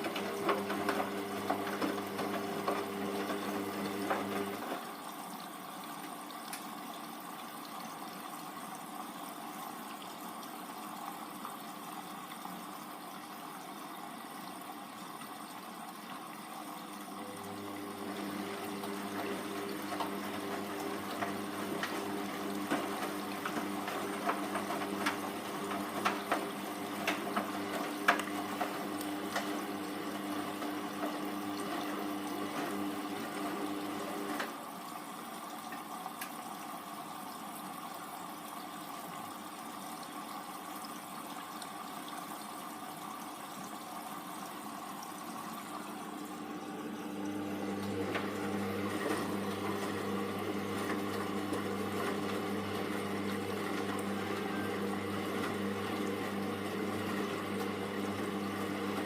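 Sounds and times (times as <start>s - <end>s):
washing machine motor hum: 0.0s - 5.2s, 16.5s - 35.6s, 44.0s - 59.0s.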